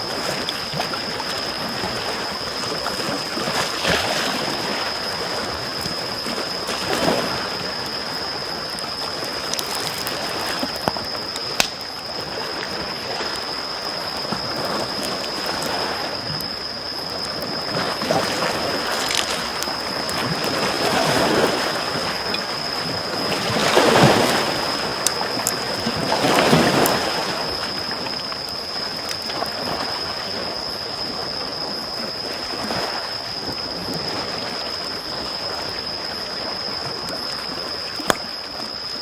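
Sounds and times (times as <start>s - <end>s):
small waves lapping on shore: 0.0s - 39.0s
campfire crackling: 4.5s - 30.3s, 37.9s - 38.3s.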